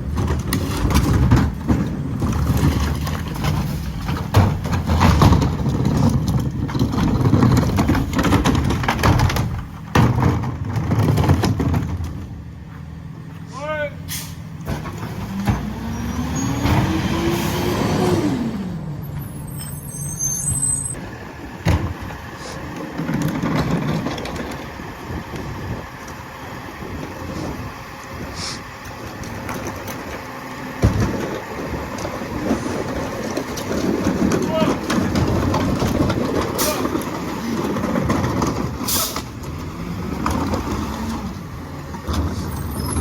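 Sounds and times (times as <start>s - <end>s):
garbage truck diesel engine revving: 14.1s - 43.0s.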